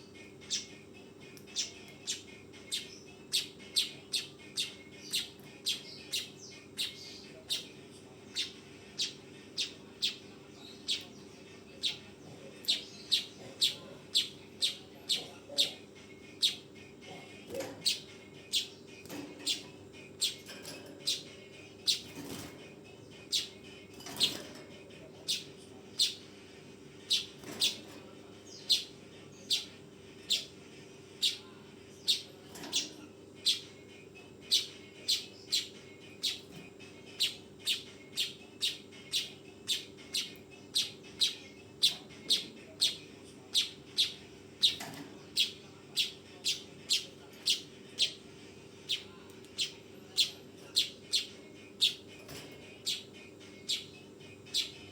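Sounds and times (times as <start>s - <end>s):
bird chirping: 1.5s - 7.7s, 11.8s - 15.8s, 16.4s - 16.6s, 17.5s - 18.8s, 19.4s - 20.4s, 21.0s - 22.5s, 23.2s - 24.5s, 27.0s - 30.5s, 31.2s - 33.8s, 34.4s - 48.2s, 48.9s - 53.9s, 54.5s - 54.9s.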